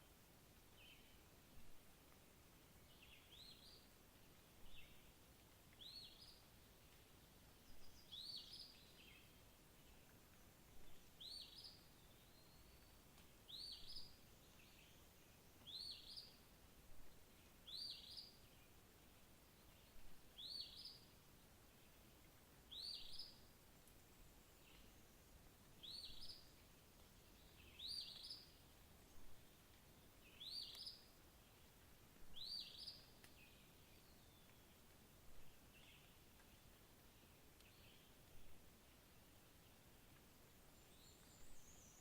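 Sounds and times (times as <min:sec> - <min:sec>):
outdoor background hiss: 0:00.0 - 0:42.0.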